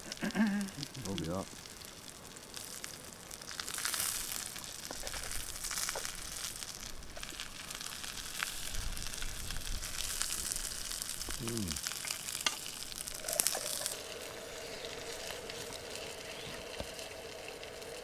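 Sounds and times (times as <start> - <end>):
food sizzling in a pan: 0.0 - 18.0
small clicks and scrapes: 4.6 - 6.2, 12.0 - 14.1.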